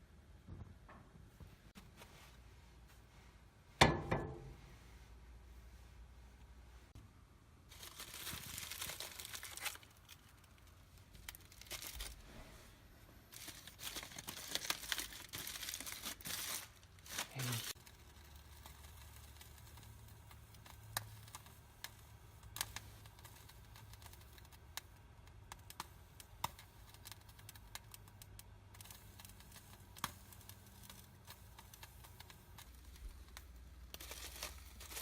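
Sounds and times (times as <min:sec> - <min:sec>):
low steady hum: 0:00.0 - 0:35.0
fire crackling: 0:07.6 - 0:35.0.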